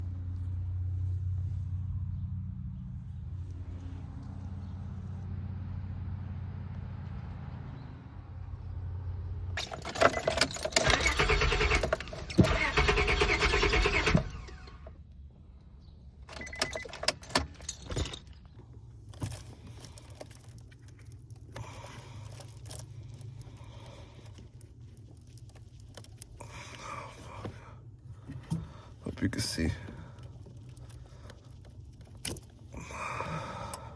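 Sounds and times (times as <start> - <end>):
car engine cranking: 9.5 - 15.0, 16.2 - 18.4, 19.1 - 33.9
short clicks and rattles: 9.6 - 14.9.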